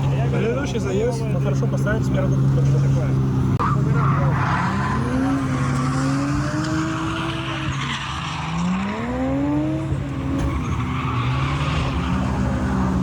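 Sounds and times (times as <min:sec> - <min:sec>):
car engine revving: 0:00.0 - 0:13.0
tyres squealing: 0:03.6 - 0:13.0.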